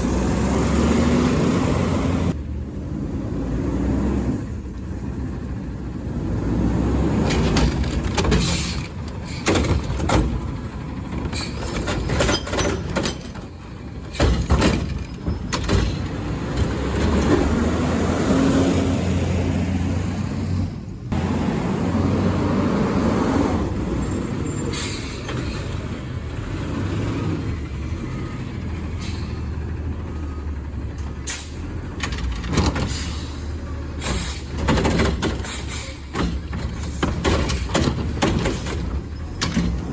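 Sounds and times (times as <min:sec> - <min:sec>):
diesel engine droning: 0:00.0 - 0:39.9
metal clanks and knocks: 0:07.2 - 0:17.5, 0:34.2 - 0:39.9.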